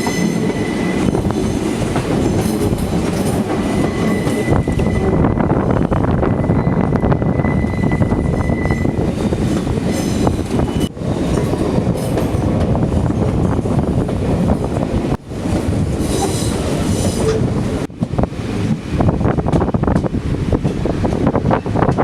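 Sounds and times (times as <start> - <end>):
high wheel squeal: 0.0 - 1.6, 3.6 - 5.5, 6.1 - 9.1, 9.9 - 10.9
train rumbling on rails: 0.0 - 22.0.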